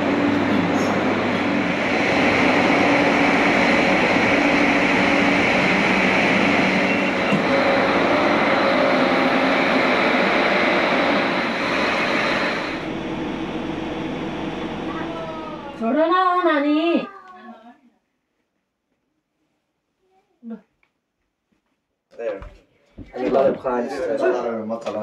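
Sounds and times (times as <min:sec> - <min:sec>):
electric train hum and rushing: 0:00.0 - 0:16.9.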